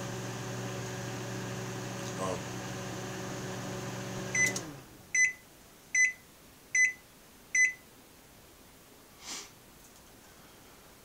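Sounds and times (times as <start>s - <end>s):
microwave oven beeps: 4.1s - 5.4s, 6.0s - 6.2s, 6.8s - 7.0s, 7.6s - 7.8s
soft hiss: 5.5s - 11.0s.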